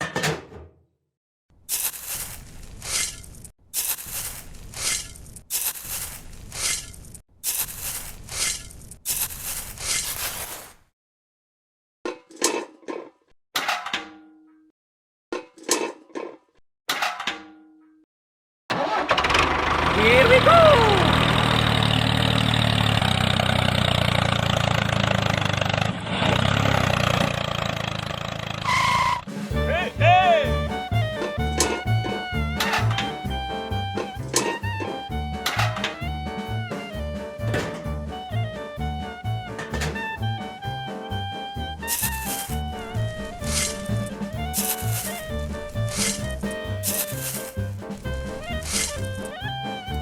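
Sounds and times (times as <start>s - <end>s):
rough scraping and rubbing: 1.7s - 10.8s, 41.7s - 50.0s
small engine chugging: 18.8s - 29.3s, 41.6s - 50.0s.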